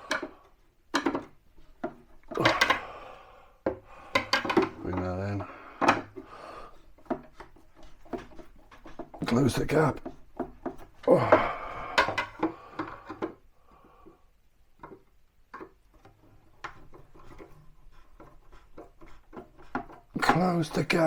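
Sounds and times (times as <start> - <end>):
cabinet knocking and clicking: 3.7 - 5.2.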